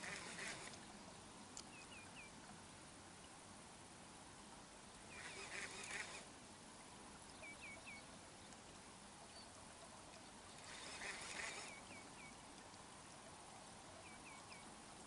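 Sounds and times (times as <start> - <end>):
rustling hiss: 0.0 - 15.0
faint high bird calls: 5.0 - 6.3, 7.3 - 8.6, 9.2 - 12.4, 13.5 - 14.8.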